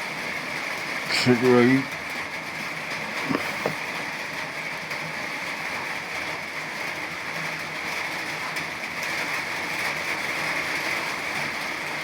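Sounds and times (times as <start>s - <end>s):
rain on surfaces: 0.0s - 12.0s.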